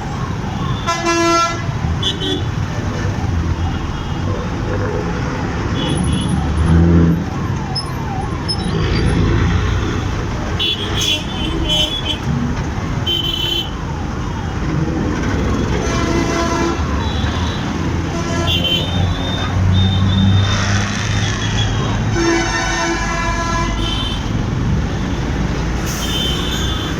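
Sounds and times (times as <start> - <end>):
vehicle horns honking: 0.8 - 2.7, 10.6 - 12.2, 13.0 - 13.8, 15.7 - 24.4, 25.9 - 26.9.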